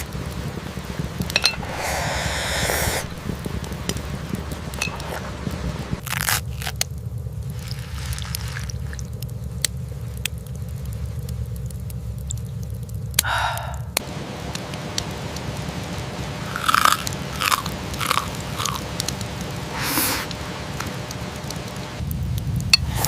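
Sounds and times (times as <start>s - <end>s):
campfire crackling: 0.0s - 23.0s
rain pattering: 0.0s - 23.0s
crunchy chewing of food: 6.0s - 9.2s, 16.5s - 19.0s.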